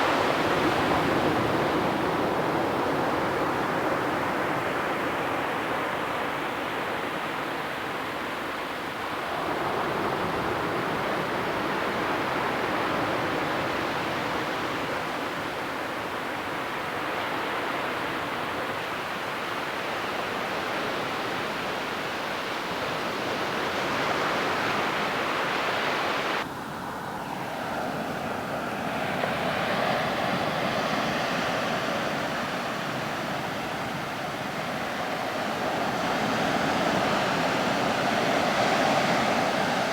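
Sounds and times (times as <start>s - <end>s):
ocean surf washing onto beach: 0.0s - 39.9s.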